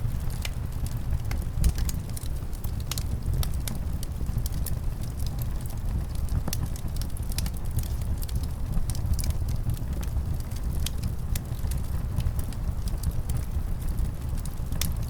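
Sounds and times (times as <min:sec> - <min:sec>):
low rumble of wind: 0:00.0 - 0:15.0
wood fire crackling: 0:00.0 - 0:15.0.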